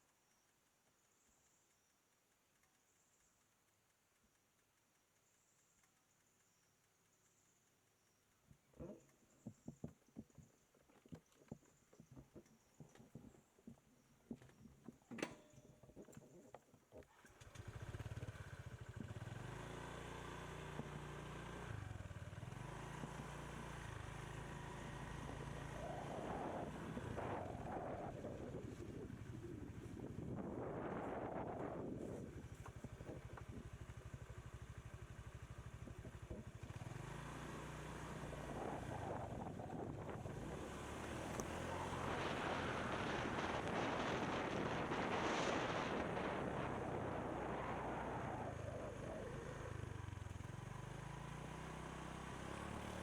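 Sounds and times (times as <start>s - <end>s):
motorbike engine running: 17.2s - 53.0s
wind noise on microphone: 25.6s - 33.7s, 38.2s - 49.8s.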